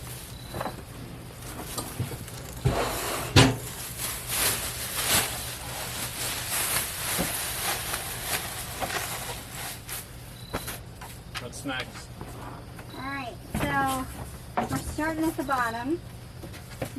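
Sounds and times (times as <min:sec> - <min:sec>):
packaging rustling and scraping: 0:00.0 - 0:11.2.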